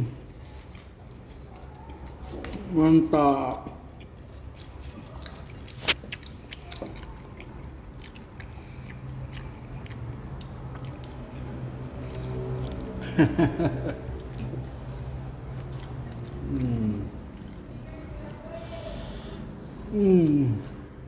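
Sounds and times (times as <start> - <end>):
chewing fries: 0.0 - 21.0
mouth clicks and smacks: 3.6 - 13.1.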